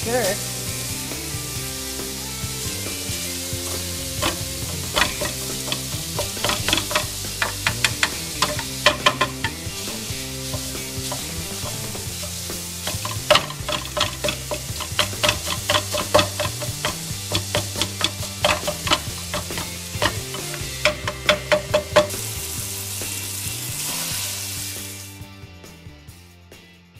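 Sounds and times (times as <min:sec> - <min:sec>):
mince sizzling: 0:00.0 - 0:25.4
background music: 0:00.0 - 0:26.9
plastic masher tapping frying pan: 0:03.5 - 0:22.3.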